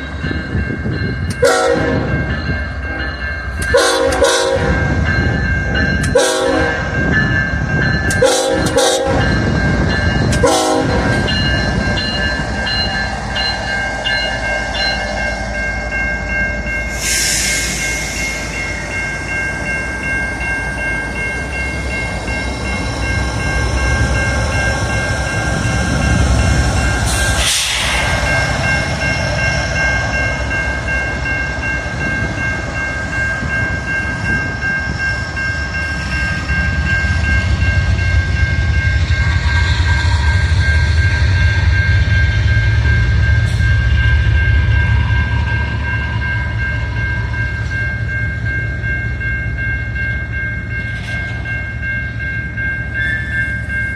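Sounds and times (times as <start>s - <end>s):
constant high tone: 0.0s - 53.9s
train rolling past: 0.0s - 53.9s
locomotive air horn blasts: 1.4s - 2.1s, 3.7s - 4.8s, 6.2s - 6.8s, 8.2s - 9.2s, 10.4s - 11.1s.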